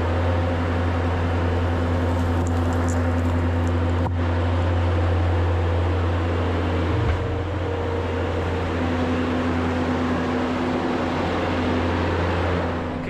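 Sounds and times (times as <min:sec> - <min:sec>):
skid steer engine running: 0:00.0 - 0:13.0.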